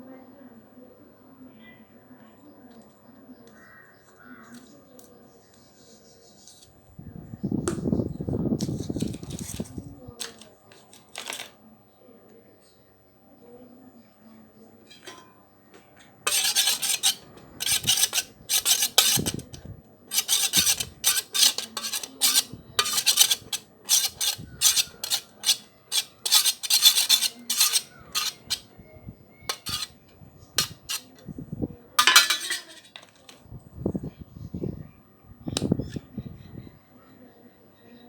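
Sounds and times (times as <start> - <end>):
utensil scraping a bowl: 8.6 - 11.6, 16.3 - 28.7, 29.4 - 31.2, 32.0 - 33.4.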